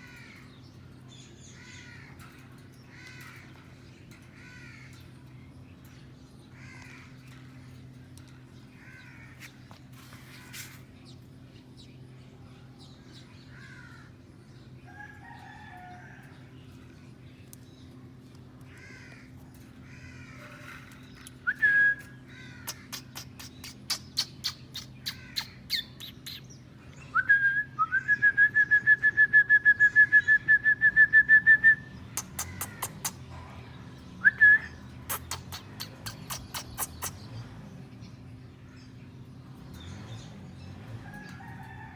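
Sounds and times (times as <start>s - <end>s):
parakeets chattering and calling: 0.0s - 12.0s, 16.8s - 26.9s, 31.9s - 41.3s
rapid trilled bird call: 32.2s - 33.2s, 34.6s - 37.3s
sharp clicks and taps: 32.2s - 33.2s.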